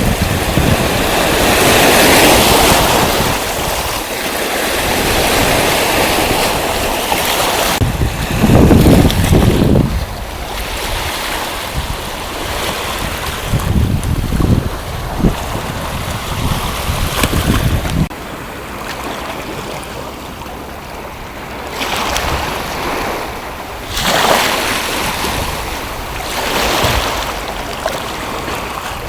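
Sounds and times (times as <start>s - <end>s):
sea waves washing onto beach: 0.0s - 29.0s
wind buffeting microphone: 0.0s - 29.0s.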